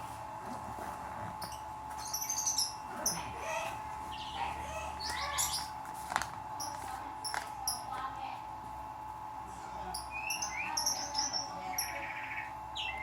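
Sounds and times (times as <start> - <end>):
small birds chirping: 1.3 - 5.8, 9.9 - 13.0.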